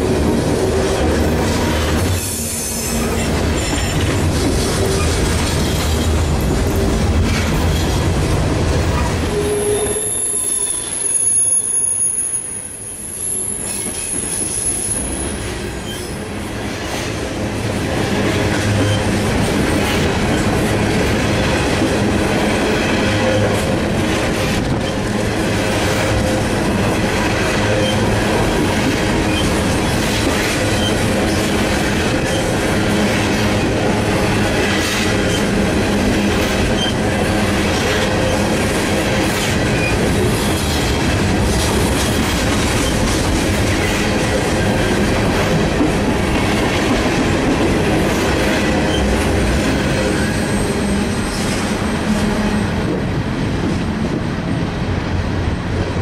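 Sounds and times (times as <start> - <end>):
thin high squeal: 9.4 - 15.2
wheel squeal: 9.4 - 16.2.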